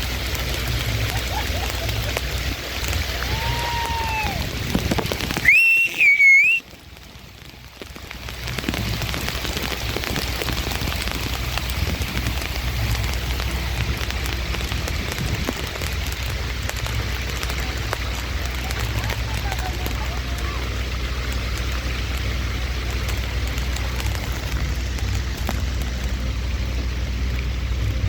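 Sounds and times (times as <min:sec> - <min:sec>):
low rumble: 0:00.0 - 0:05.6, 0:06.6 - 0:28.0
steady rain falling: 0:00.0 - 0:28.0
falling whistle: 0:05.4 - 0:06.6
high wavering whistle: 0:05.4 - 0:06.6.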